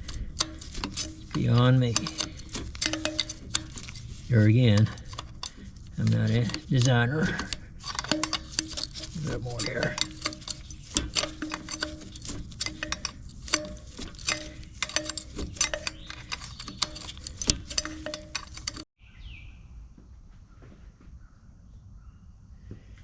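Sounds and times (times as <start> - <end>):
ringing metal tones: 0.0 - 18.9
wrench clicking on a nut: 0.0 - 18.9
bird chirp: 19.0 - 19.8, 20.5 - 23.0.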